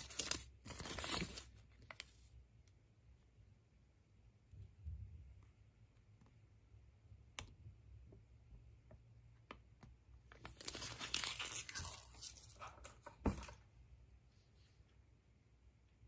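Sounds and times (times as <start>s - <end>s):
wrapping tearing and crinkling: 10.4s - 12.9s.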